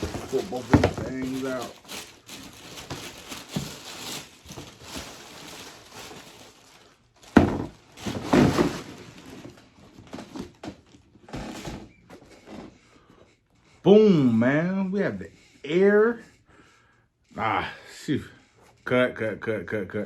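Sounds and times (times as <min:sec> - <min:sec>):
rustling and handling: 0:00.0 - 0:13.9.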